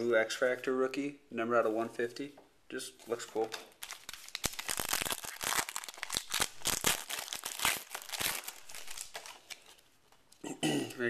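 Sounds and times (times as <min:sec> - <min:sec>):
foil wrapper crinkling: 0:03.8 - 0:09.8.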